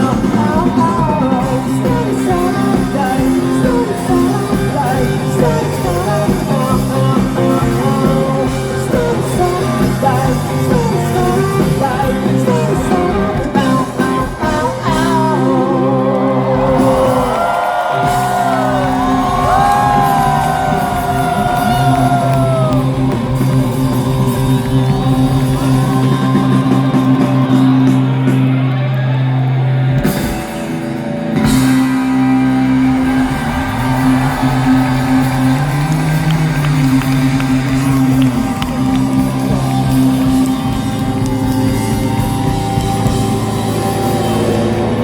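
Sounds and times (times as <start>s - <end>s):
live rock band playing: 0.0s - 45.0s
low bass notes: 0.0s - 45.0s.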